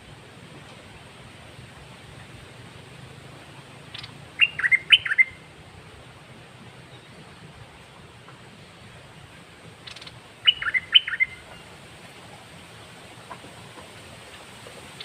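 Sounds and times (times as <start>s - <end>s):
bird whistled song phrase: 4.4s - 5.4s, 10.4s - 11.4s.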